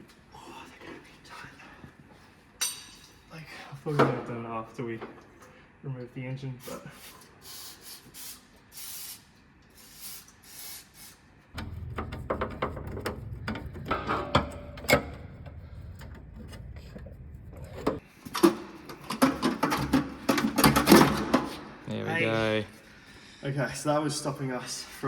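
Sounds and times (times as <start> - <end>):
low hum: 11.6 - 18.0
metal clicks and knocks: 11.6 - 21.3.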